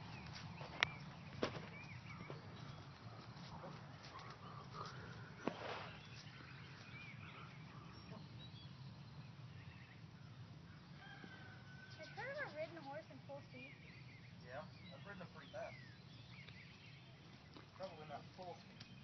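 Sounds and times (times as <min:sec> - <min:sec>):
low steady background noise: 0:00.0 - 0:19.0
small bird chirps: 0:11.7 - 0:19.0.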